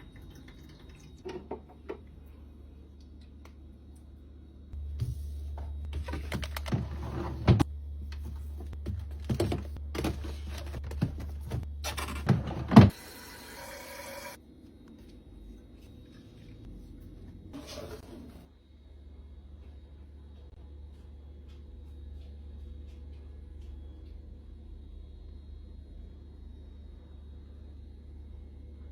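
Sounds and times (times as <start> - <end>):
steady low hum: 14.4 - 28.9.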